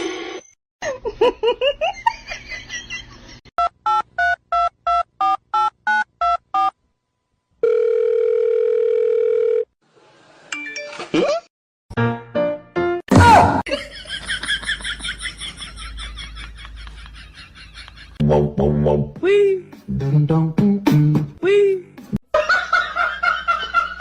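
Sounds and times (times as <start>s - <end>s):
steady telephone tone: 7.6s - 9.7s.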